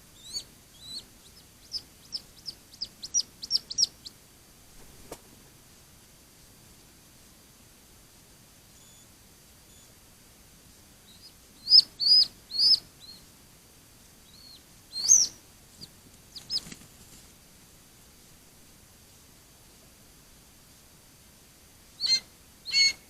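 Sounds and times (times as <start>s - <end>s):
small bird chirping: 0.0s - 4.2s, 8.8s - 10.0s, 11.0s - 13.3s, 14.2s - 17.0s, 22.0s - 23.0s.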